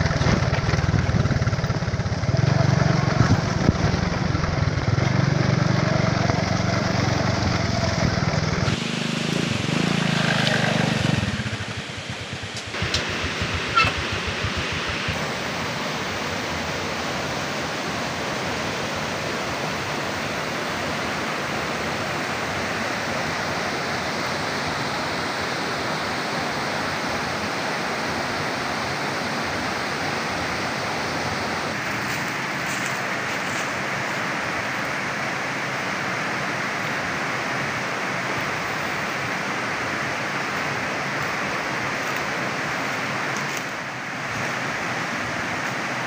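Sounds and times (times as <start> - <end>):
water rushing: 0.0 - 46.0.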